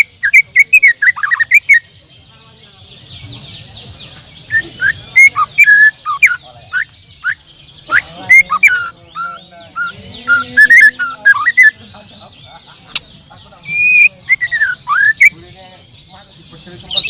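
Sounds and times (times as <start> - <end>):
chorus of high bird chirps: 0.0 - 17.0.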